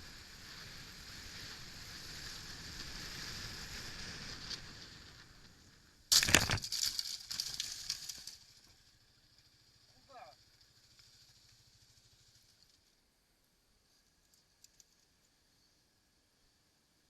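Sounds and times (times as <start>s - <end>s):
debris crunching and clattering: 6.1s - 8.4s.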